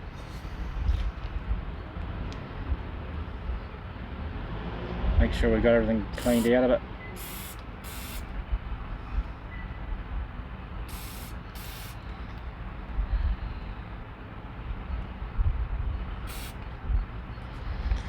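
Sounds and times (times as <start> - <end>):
aerosol spray hissing: 6.2 - 6.6, 7.2 - 8.2, 10.9 - 12.0, 16.2 - 16.6.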